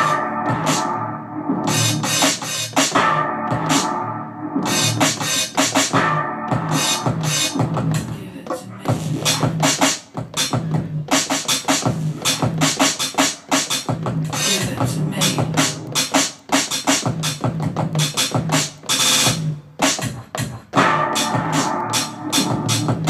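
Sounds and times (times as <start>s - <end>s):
hip-hop drum beat: 0.0s - 1.0s, 1.7s - 3.9s, 4.7s - 23.0s
pitched bass line: 0.0s - 9.8s, 13.9s - 16.2s, 20.8s - 23.0s.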